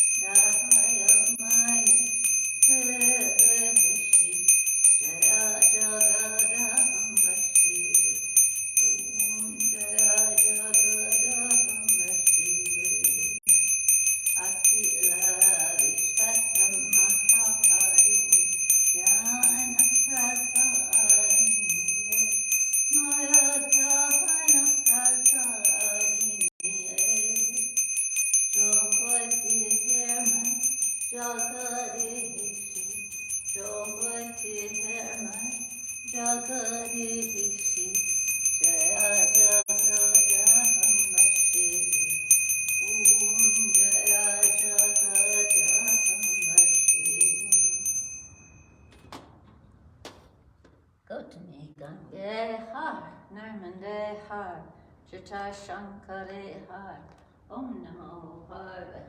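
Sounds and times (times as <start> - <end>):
person chanting: 0.0 - 13.4, 14.3 - 27.9, 28.5 - 47.8
hand bell ringing: 0.0 - 49.2.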